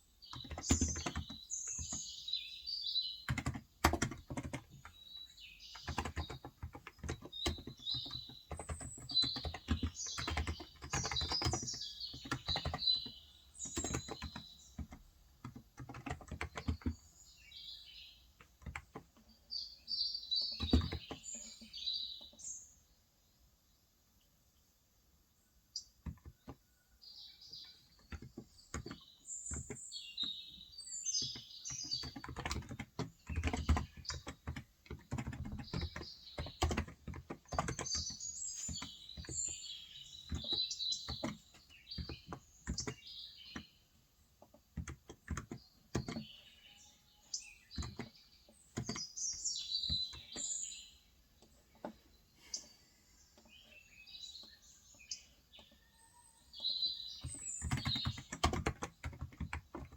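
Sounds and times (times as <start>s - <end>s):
small birds chirping: 0.0s - 59.9s
keyboard typing: 0.3s - 2.2s, 3.2s - 5.0s, 5.7s - 17.1s, 18.4s - 19.2s, 20.5s - 21.6s, 27.9s - 29.8s, 31.2s - 43.6s, 44.4s - 46.3s, 47.8s - 50.4s, 57.2s - 59.9s.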